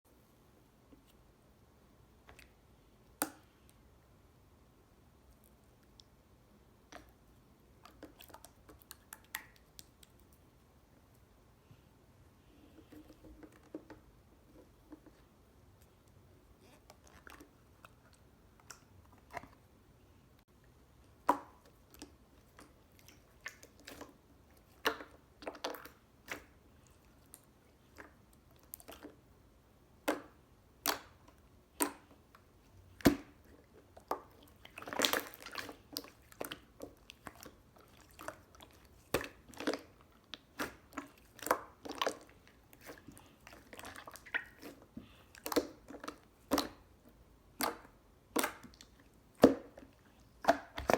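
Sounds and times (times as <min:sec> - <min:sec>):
slime squished with clicks and pops: 0:02.2 - 0:03.8, 0:07.8 - 0:10.4, 0:21.1 - 0:26.6, 0:30.0 - 0:43.0, 0:45.4 - 0:49.8.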